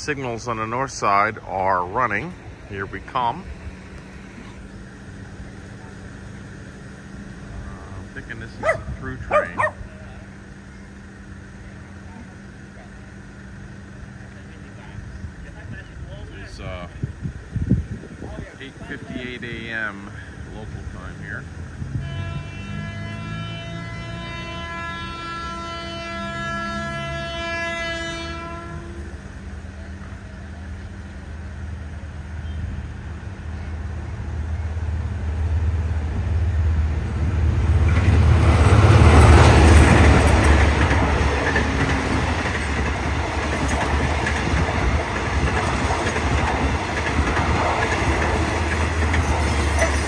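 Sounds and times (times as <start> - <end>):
locomotive engine passing: 0.0 - 50.0
train horn: 21.8 - 29.2
carriage wheels clattering on rails: 39.2 - 50.0.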